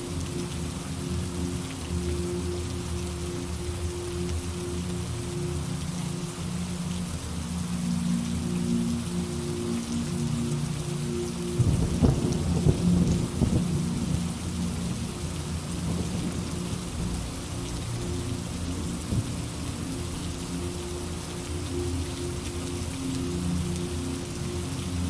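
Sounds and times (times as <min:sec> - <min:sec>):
steady rain: 0:00.0 - 0:25.0
thunder crackling and rumbling: 0:11.6 - 0:14.4, 0:15.7 - 0:17.7.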